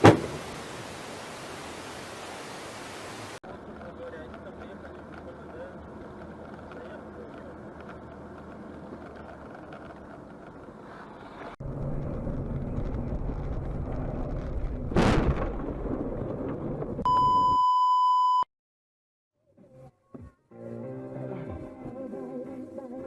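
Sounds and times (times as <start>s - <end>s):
car engine and road noise: 0.0s - 15.0s
loud collision crash: 14.4s - 17.0s
steady high beep: 17.1s - 18.5s.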